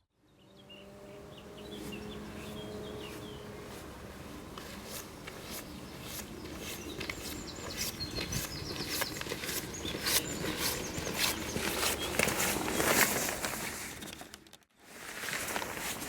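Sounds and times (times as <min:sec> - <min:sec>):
small birds chirping: 0:00.2 - 0:13.0
crackling footsteps: 0:01.8 - 0:16.0.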